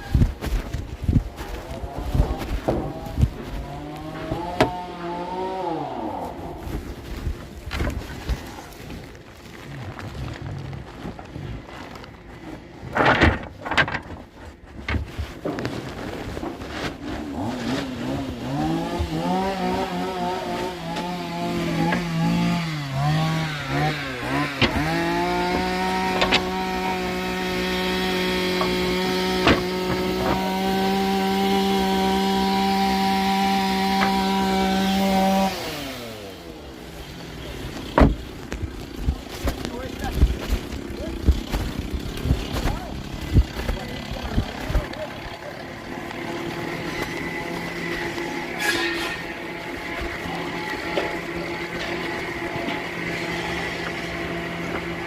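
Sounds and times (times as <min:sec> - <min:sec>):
power saw running: 0:18.0 - 0:55.0
wood knocking: 0:28.5 - 0:30.5, 0:37.9 - 0:39.2.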